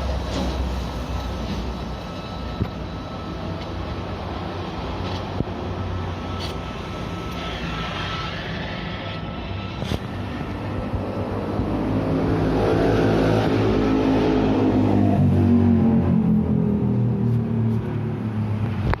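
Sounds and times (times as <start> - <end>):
car engine revving: 9.8 - 17.1.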